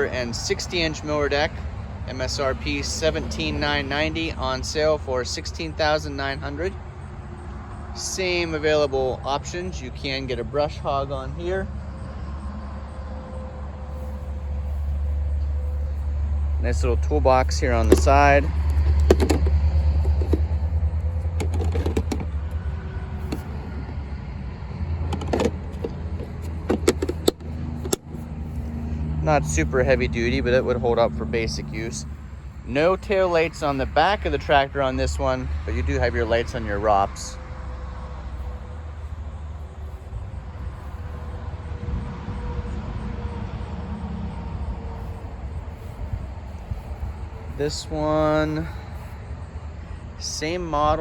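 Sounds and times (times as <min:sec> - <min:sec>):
distant motor traffic rumble: 0:00.0 - 0:51.0
faint engine hum: 0:00.0 - 0:51.0
toolbox clicks and knocks: 0:17.8 - 0:20.5, 0:21.3 - 0:22.4, 0:25.0 - 0:28.1.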